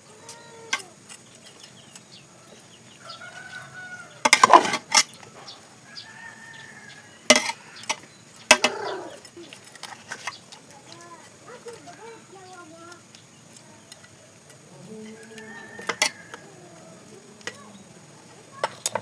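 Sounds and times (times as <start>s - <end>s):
chickens calling: 0.0s - 19.0s
scraping clatter: 4.2s - 5.2s, 7.3s - 11.8s.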